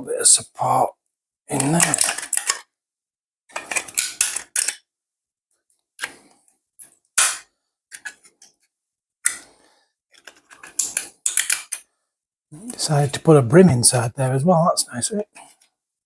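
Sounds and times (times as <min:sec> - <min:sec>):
plastic clicking and scraping: 0:01.5 - 0:02.7, 0:03.5 - 0:04.9, 0:06.0 - 0:08.6, 0:10.1 - 0:11.9.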